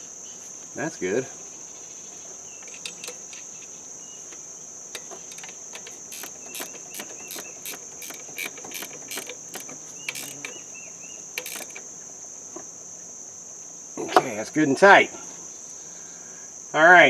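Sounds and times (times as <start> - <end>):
ratchet wrench clicking: 5.0 - 10.6, 11.4 - 11.8.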